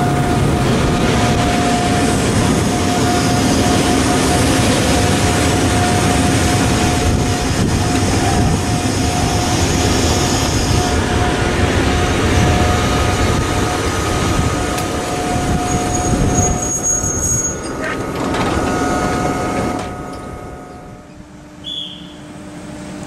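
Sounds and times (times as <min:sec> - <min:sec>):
steady whining tone: 0:00.0 - 0:23.0
train wheels rumbling on rails: 0:00.0 - 0:23.0.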